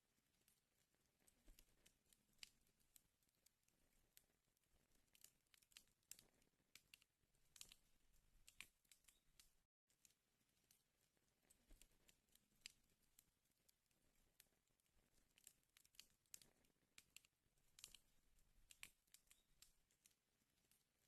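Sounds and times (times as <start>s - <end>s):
wood fire crackling and popping: 4.1s - 9.6s, 14.0s - 21.0s.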